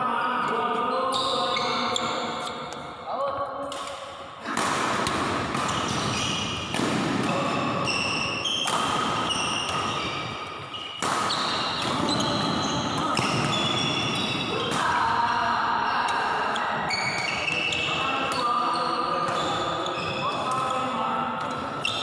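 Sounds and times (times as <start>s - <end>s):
voices in hall: 0.0s - 22.0s
shoes squeaking on court: 0.5s - 3.0s, 5.5s - 14.7s, 16.4s - 22.0s
badminton racket hits: 1.1s - 2.9s, 3.6s - 15.1s.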